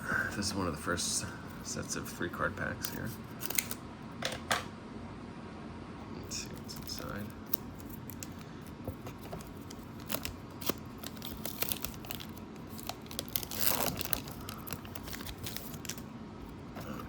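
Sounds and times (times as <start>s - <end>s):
foil wrapper crinkling: 2.8s - 3.8s, 6.5s - 17.0s
foil wrapper ripping: 2.8s - 3.8s, 6.6s - 16.1s.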